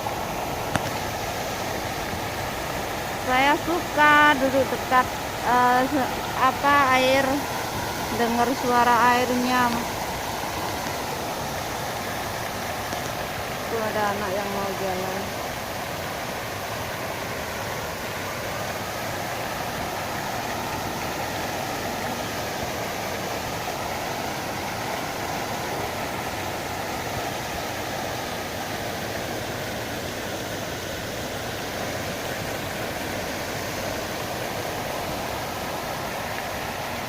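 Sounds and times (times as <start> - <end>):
fountain water falling: 0.0 - 37.0.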